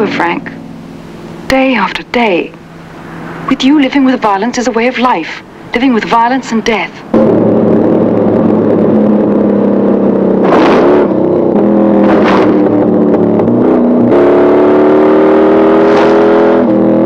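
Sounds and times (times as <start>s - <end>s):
car engine at high revs: 0.0s - 4.1s, 5.4s - 17.0s
harsh engine bursts: 5.4s - 16.8s.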